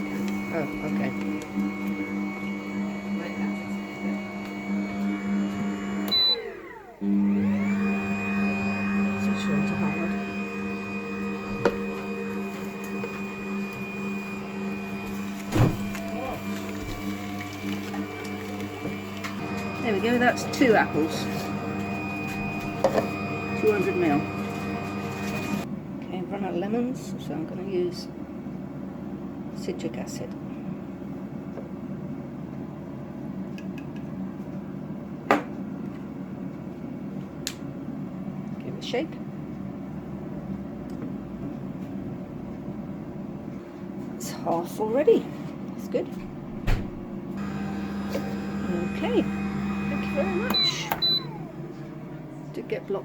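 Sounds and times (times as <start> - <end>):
juicer motor humming: 0.0 - 25.7, 46.4 - 52.5.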